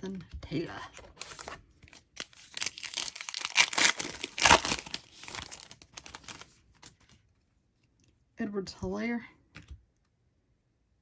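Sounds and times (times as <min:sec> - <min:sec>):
wrapper tearing and crinkling: 0:01.2 - 0:06.6.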